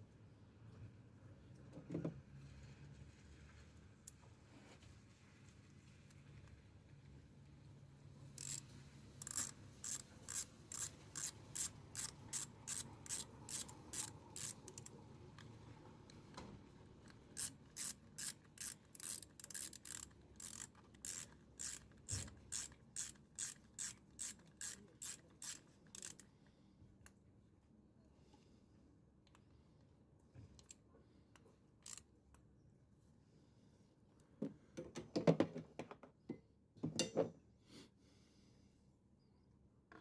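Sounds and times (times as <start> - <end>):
ratchet wrench clicking: 8.4 - 15.0, 17.3 - 26.3, 31.8 - 32.0.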